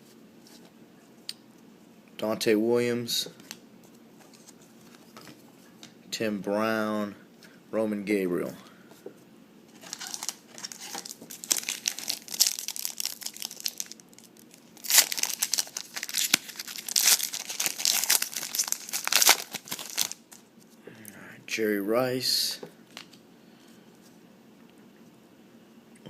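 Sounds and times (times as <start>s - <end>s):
wrapper crinkling and tearing: 9.8s - 20.5s.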